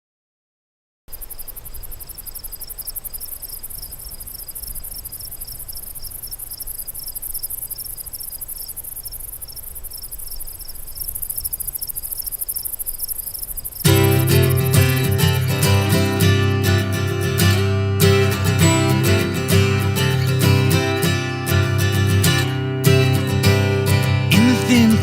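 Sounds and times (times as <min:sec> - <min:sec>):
lower insect chirp: 0:01.1 - 0:16.3
insects trilling: 0:01.1 - 0:17.6.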